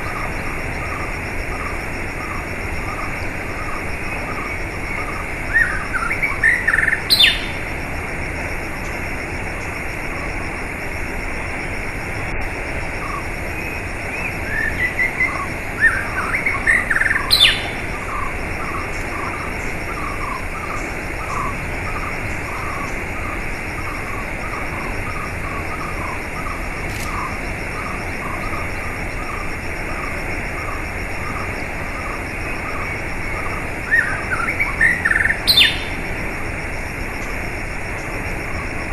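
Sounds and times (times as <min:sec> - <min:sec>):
small birds chirping: 0:00.0 - 0:07.7, 0:13.0 - 0:36.0.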